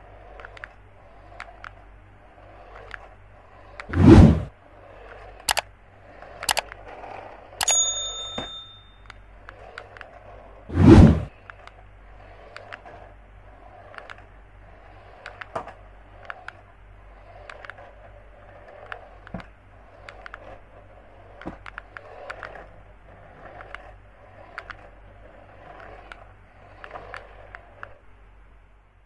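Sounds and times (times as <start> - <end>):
low electrical hum: 0.0 - 29.0.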